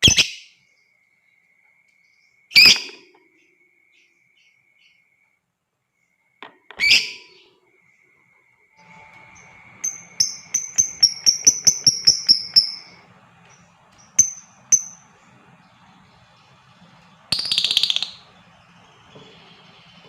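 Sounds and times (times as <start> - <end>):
bird chirping: 0.0 - 5.3, 5.9 - 20.0
bird chattering burst: 9.8 - 13.0, 16.8 - 20.0.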